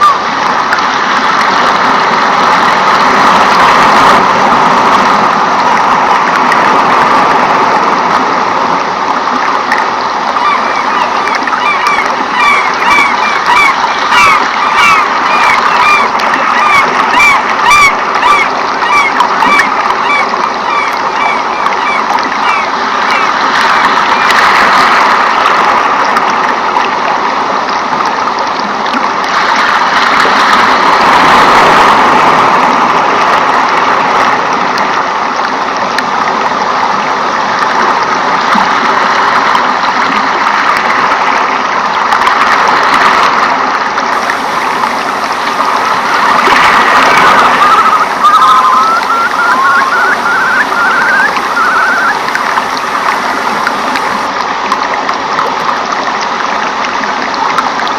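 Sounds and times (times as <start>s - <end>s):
rushing water: 0.0s - 57.9s
quick high chirps: 47.3s - 52.3s.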